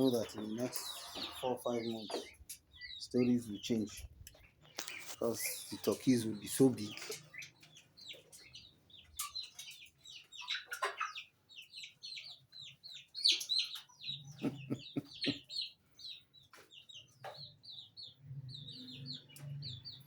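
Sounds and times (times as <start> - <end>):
chickens clucking: 0.0 - 20.0
high falling peeps: 14.2 - 15.6.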